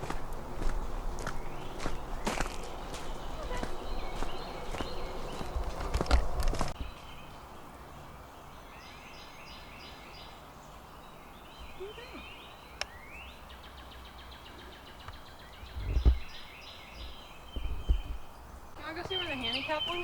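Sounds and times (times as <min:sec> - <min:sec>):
songbirds singing: 0:00.0 - 0:20.0
low thump: 0:15.7 - 0:16.4.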